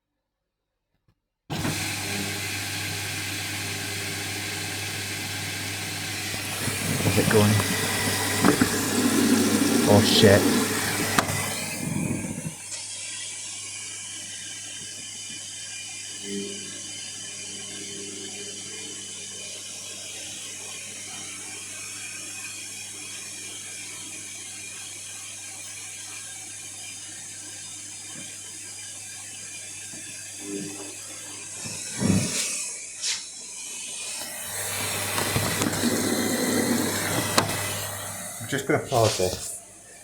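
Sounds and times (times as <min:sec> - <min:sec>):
water hissing into washing machine: 0:01.5 - 0:16.3, 0:18.9 - 0:40.0.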